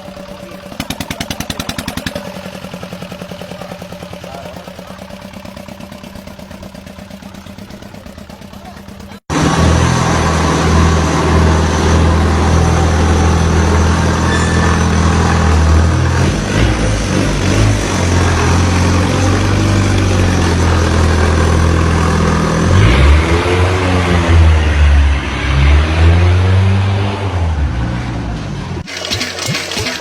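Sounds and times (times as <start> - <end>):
motorcycle engine running: 0.0 - 23.9.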